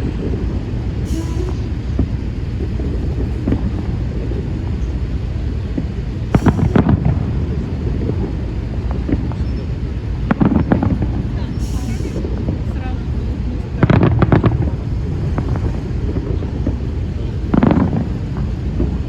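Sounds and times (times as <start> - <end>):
fireworks rumbling bursts: 0.0 - 19.0
wind buffeting microphone: 0.0 - 19.0
sharp firework bangs: 5.8 - 9.4, 10.2 - 12.7, 13.7 - 19.0.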